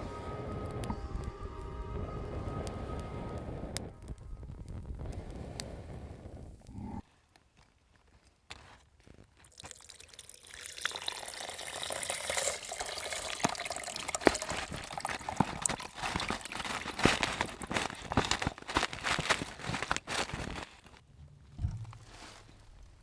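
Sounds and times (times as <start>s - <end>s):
water pouring through colander: 9.4s - 19.4s
ice clinking in strainer: 9.5s - 18.4s.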